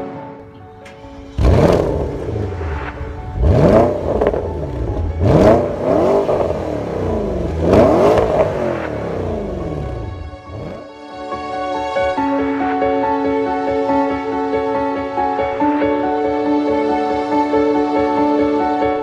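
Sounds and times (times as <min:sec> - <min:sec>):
car engine revving: 0:00.8 - 0:10.9.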